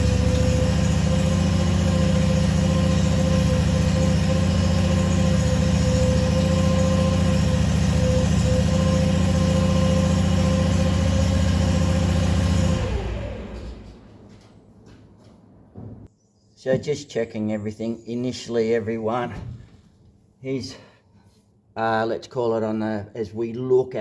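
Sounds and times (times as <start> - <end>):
tractor engine running: 0.0 - 14.8.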